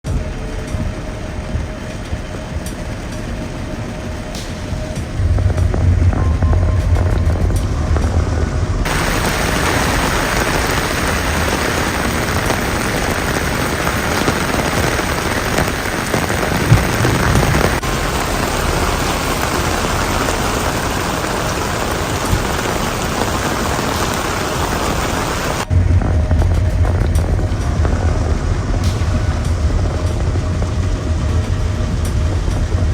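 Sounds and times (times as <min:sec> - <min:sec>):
heavy rain pouring: 0:00.0 - 0:32.9
strong low hum: 0:00.0 - 0:32.9
sudden sharp crack: 0:28.8 - 0:32.2.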